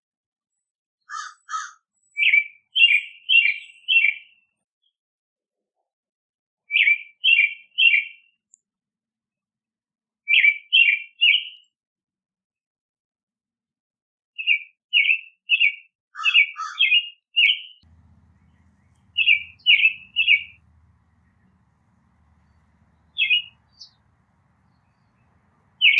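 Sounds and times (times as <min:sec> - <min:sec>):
songbird singing: 0:17.8 - 0:25.9.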